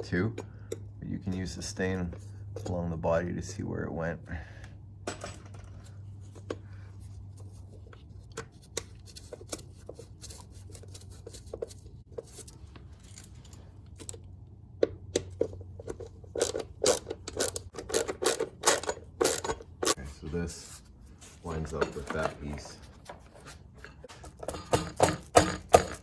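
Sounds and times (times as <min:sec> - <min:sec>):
steady low hum: 0:00.0 - 0:26.0
metal tools clicking and scraping: 0:05.0 - 0:14.3, 0:15.2 - 0:20.0, 0:21.5 - 0:26.0.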